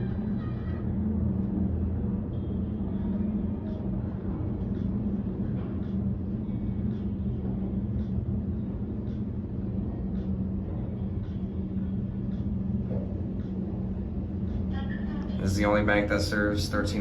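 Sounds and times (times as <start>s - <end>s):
low mechanical droning hum: 0.0s - 17.0s.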